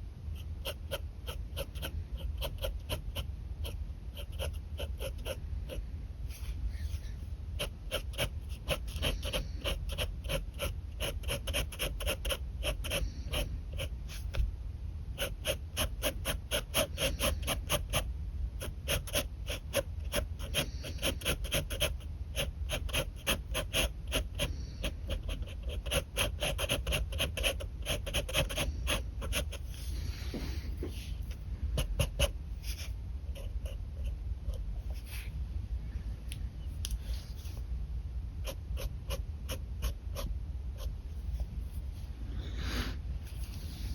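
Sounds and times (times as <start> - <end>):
steady low hum: 0.0 - 43.9
pen scratching on paper: 0.3 - 5.8, 7.6 - 14.4, 15.2 - 29.9, 31.8 - 35.2, 38.4 - 40.9.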